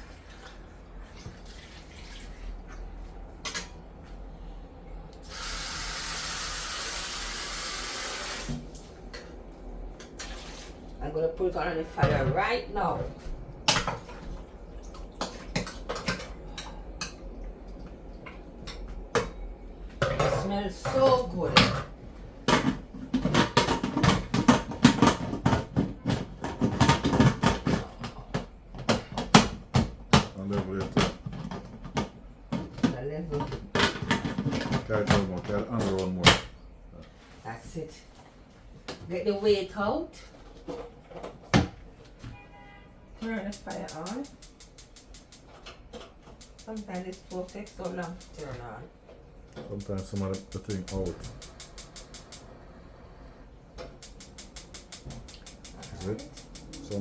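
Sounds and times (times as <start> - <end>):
kitchen tap running: 5.2 - 9.3, 13.6 - 36.6, 43.2 - 57.0
metal pot and utensils clattering: 15.2 - 17.2, 18.7 - 29.5, 30.2 - 36.5.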